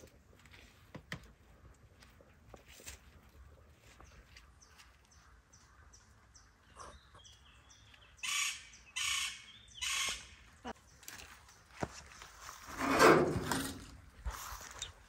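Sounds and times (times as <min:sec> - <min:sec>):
bird chirping: 0:03.8 - 0:11.6.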